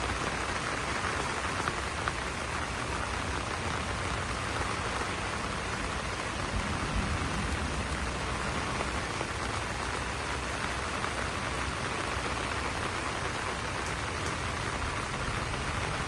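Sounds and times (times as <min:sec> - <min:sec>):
rain pattering on leaves: 0:00.0 - 0:16.0.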